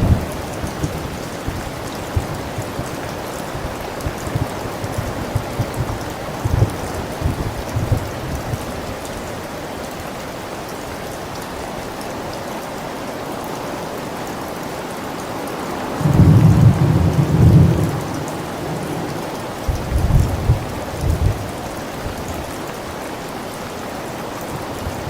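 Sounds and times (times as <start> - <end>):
thunder rumbling: 0.0 - 8.6, 16.0 - 21.6
steady rain falling: 0.0 - 25.0.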